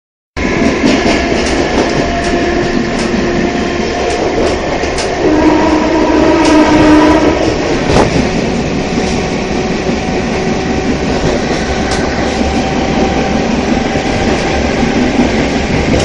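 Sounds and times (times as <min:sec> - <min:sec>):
train rumble and rushing: 0:00.4 - 0:16.0
rail-joint clicks: 0:00.5 - 0:05.2, 0:07.4 - 0:16.0.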